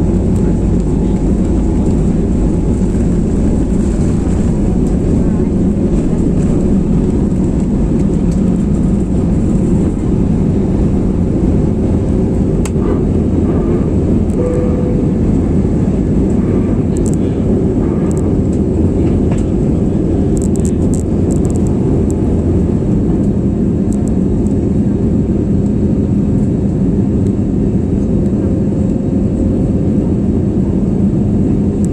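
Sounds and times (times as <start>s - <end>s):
jet engines rumbling in cabin: 0.0s - 31.9s.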